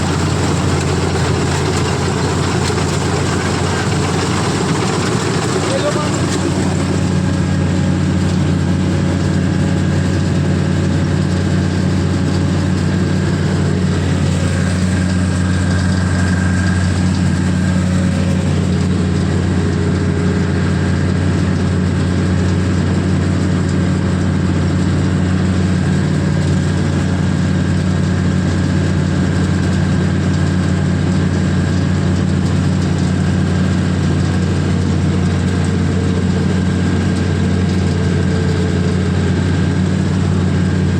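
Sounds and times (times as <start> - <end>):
combine harvester engine running: 0.0 - 40.9.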